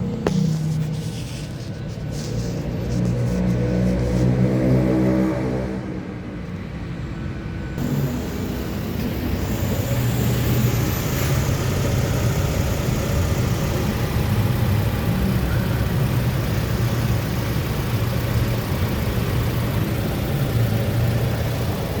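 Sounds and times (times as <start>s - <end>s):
car engine humming: 7.7s - 22.0s.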